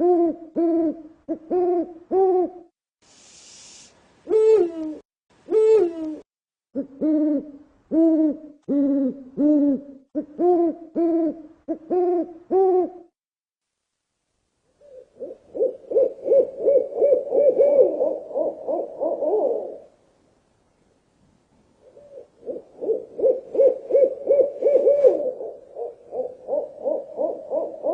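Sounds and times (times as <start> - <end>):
owl hooting: 0.0 - 2.6, 4.2 - 6.2, 6.8 - 13.0, 14.8 - 19.9, 21.8 - 27.9.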